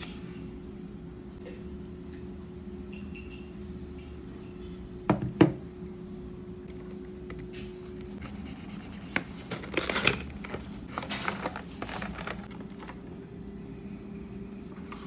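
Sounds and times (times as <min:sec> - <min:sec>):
steady low hum: 0:00.0 - 0:15.0
packaging crinkling: 0:09.2 - 0:13.0.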